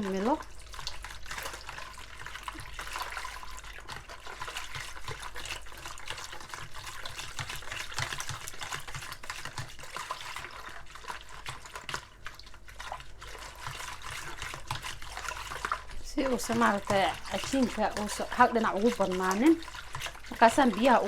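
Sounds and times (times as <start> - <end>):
water swishing in a bowl: 0.0 - 21.0.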